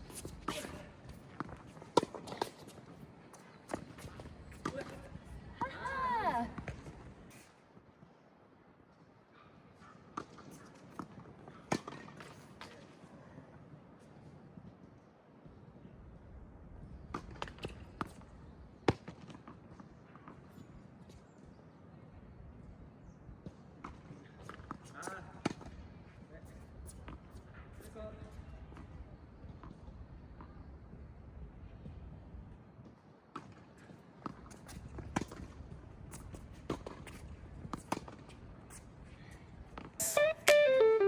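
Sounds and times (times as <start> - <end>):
racket hitting tennis ball: 40.0 - 41.0.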